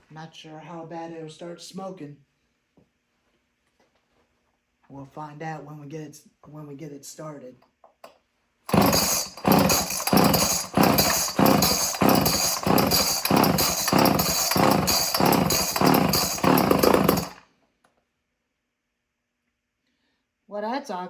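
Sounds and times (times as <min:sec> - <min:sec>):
chainsaw starter rope pulls: 0:08.7 - 0:17.4.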